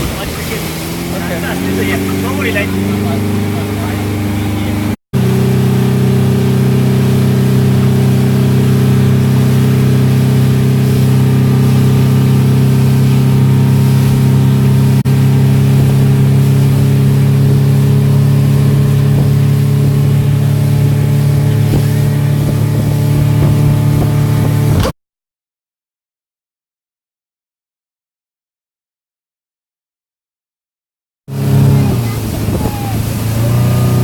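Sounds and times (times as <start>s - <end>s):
wind and water hiss: 0.0s - 4.0s, 5.2s - 24.7s, 31.6s - 34.0s
motorboat engine running: 0.0s - 24.9s, 31.3s - 34.0s.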